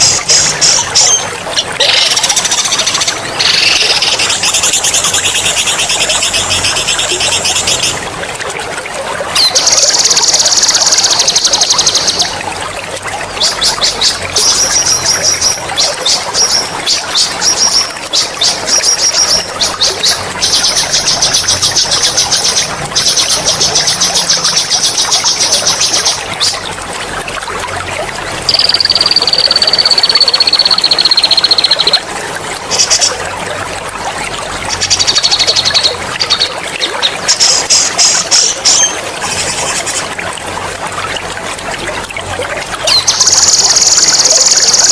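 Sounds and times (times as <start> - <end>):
trickling water: 0.0 - 44.9
songbird trilling: 28.5 - 32.0.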